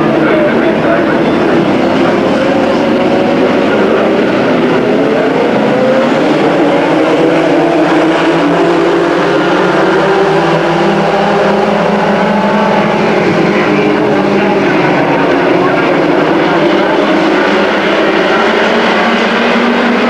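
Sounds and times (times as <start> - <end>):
race truck engines passing: 0.0 - 20.0.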